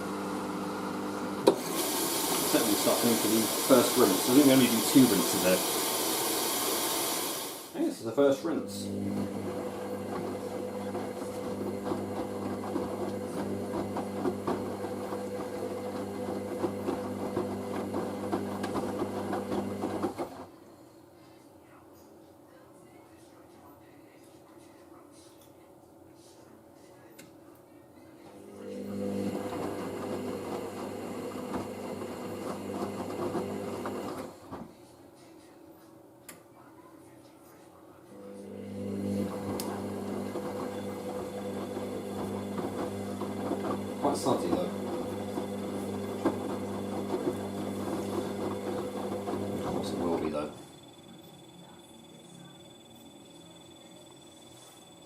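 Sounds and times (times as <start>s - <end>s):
washing machine hum: 0.0s - 20.6s, 28.3s - 34.8s, 38.1s - 55.0s.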